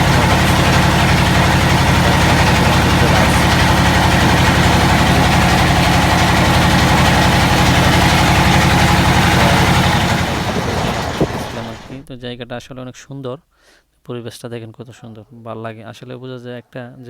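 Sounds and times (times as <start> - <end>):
engine throbbing: 0.0 - 12.8.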